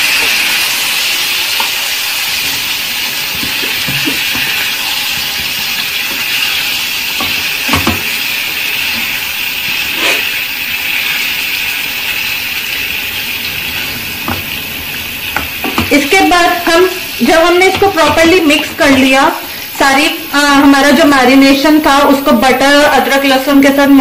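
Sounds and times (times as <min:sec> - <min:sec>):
chicken sizzling in hot oil: 0:00.0 - 0:24.0
knocks from stirring: 0:07.2 - 0:08.1.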